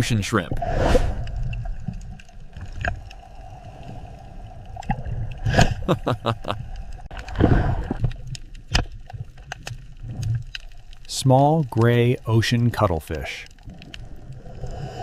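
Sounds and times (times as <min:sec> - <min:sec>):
underwater rumble and gurgling: 0:00.0 - 0:15.0.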